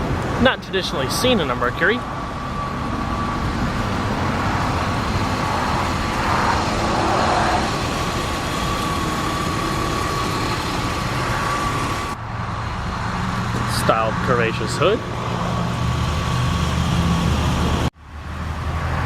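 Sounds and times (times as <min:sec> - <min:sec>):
thin steady whine: 0:00.0 - 0:15.5
road traffic: 0:00.0 - 0:19.0
vehicle passing: 0:00.0 - 0:19.0.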